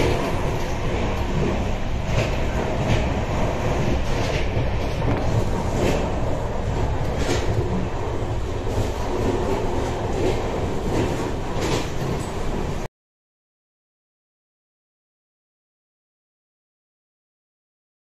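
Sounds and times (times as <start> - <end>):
train coach rumble: 0.0 - 12.9.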